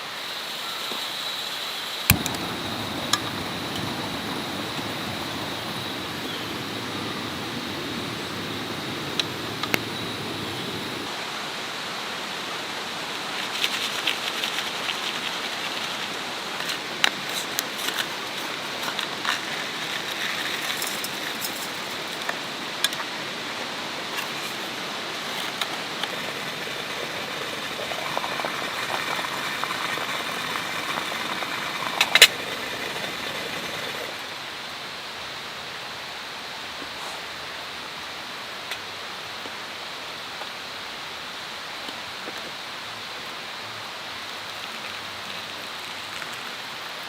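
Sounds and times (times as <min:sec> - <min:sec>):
wood fire crackling and popping: 0:02.1 - 0:11.1, 0:15.7 - 0:34.3.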